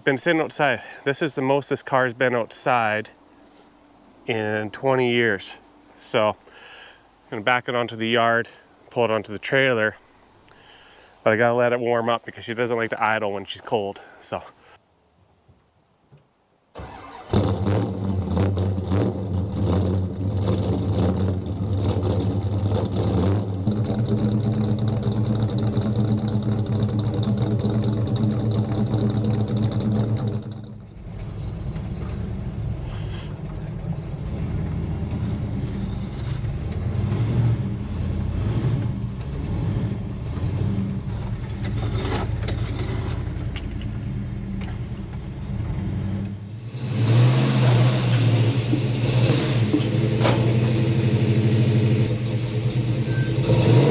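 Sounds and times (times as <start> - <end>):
car engine running rough: 16.8 - 53.9.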